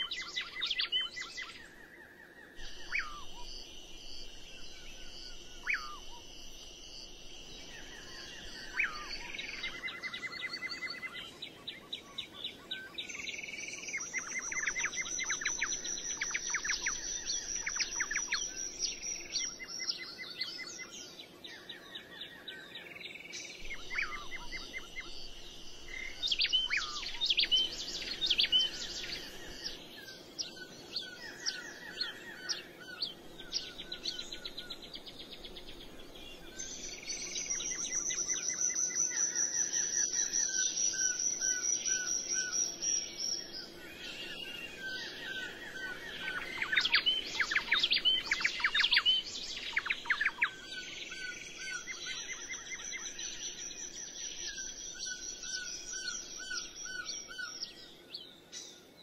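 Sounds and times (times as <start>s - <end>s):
songbirds chirping: 0.0s - 59.0s
high steady bird trill: 2.5s - 11.3s, 22.9s - 35.6s.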